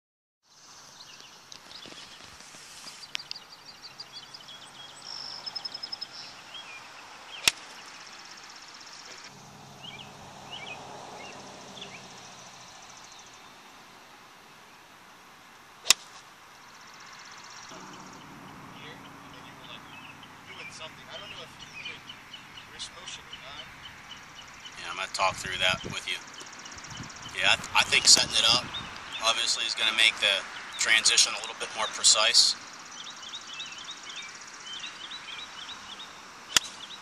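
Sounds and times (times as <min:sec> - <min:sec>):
birds chirping: 0:00.5 - 0:37.0
golf club striking ball: 0:07.4 - 0:07.7, 0:15.8 - 0:16.2, 0:36.5 - 0:36.9.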